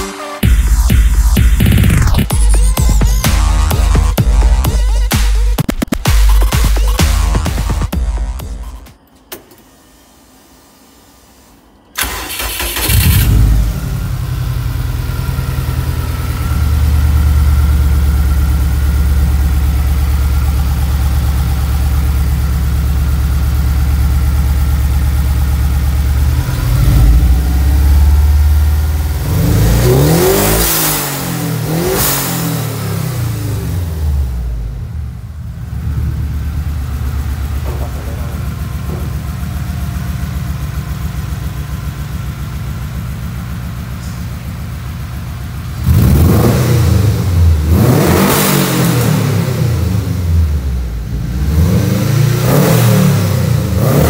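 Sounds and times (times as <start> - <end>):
car engine starting and idling: 0.0 - 54.0
engine revving: 26.1 - 39.5, 45.6 - 54.0.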